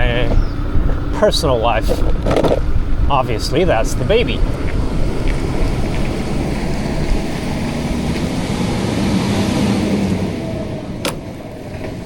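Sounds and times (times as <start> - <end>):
truck engine humming: 0.0 - 12.0
wind and road noise: 0.0 - 12.0.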